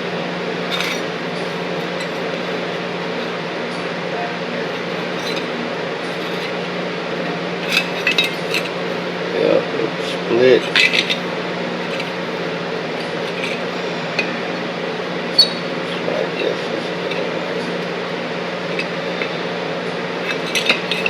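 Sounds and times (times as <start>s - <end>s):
metal tools clinking: 0.6s - 3.4s, 4.6s - 9.2s, 10.0s - 19.5s, 20.2s - 21.0s.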